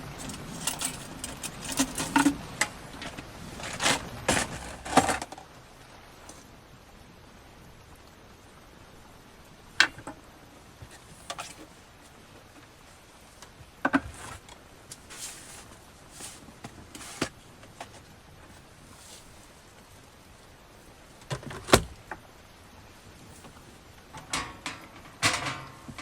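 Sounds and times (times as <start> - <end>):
steady hiss: 0.0 - 26.0
soft rustling: 10.8 - 21.2
sharp knocks and clatters: 24.2 - 26.0.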